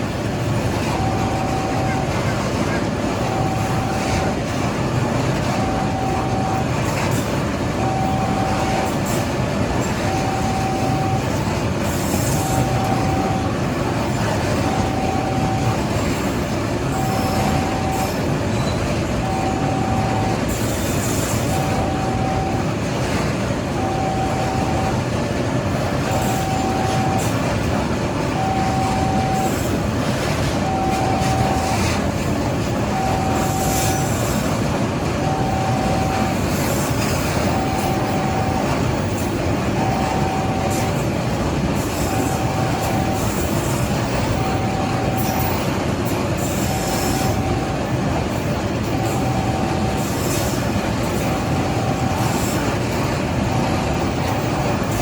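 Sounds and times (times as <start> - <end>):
level-crossing warning alarm: 0.0 - 55.0
train wheels on rails: 0.0 - 55.0
wheel squeal: 16.9 - 19.0.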